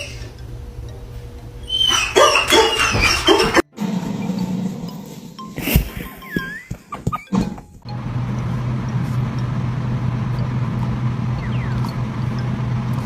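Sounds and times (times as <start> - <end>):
low hum with rushing noise: 7.9 - 13.0.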